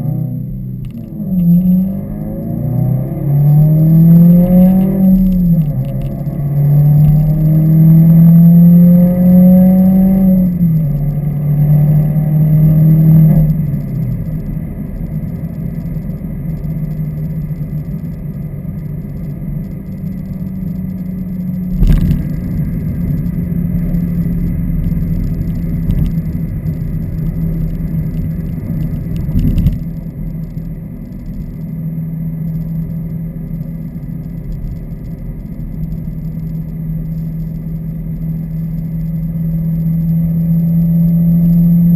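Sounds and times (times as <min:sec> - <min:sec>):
car engine revving hard: 0:01.1 - 0:10.6.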